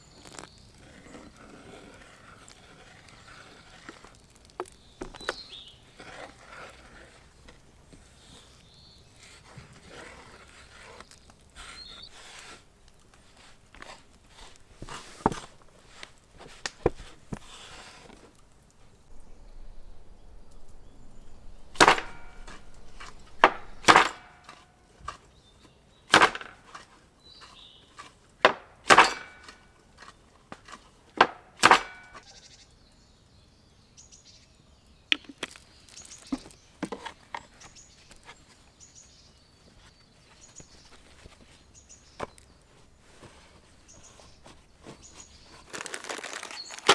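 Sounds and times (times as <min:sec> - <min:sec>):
sharp knocks and cracks: 0:03.8 - 0:05.5, 0:12.9 - 0:19.2, 0:21.4 - 0:25.3, 0:26.1 - 0:32.3, 0:44.2 - 0:46.9.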